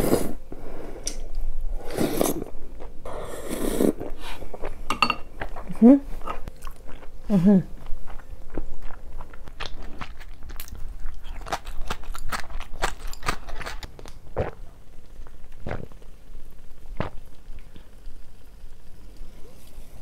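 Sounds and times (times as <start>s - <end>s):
person chewing food: 5.4s - 7.2s, 7.8s - 14.6s
person gulping soda: 15.5s - 16.2s, 16.9s - 17.9s.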